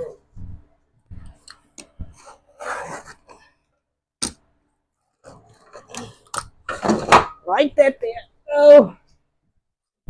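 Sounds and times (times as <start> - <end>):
drywall scraping: 2.0 - 3.5.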